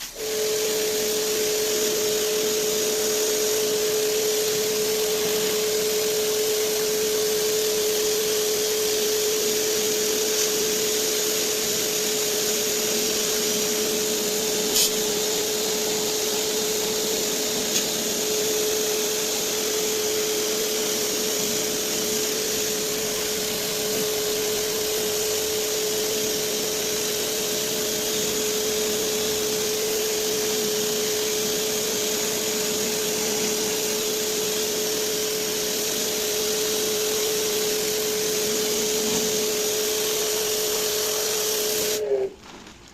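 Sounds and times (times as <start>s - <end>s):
electric motor whining: 0.1s - 42.4s
rushing hissing noise: 9.9s - 18.6s.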